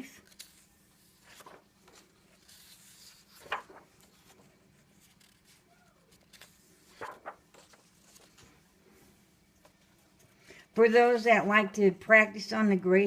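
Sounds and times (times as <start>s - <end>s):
paper pages rustling: 0.1s - 10.4s.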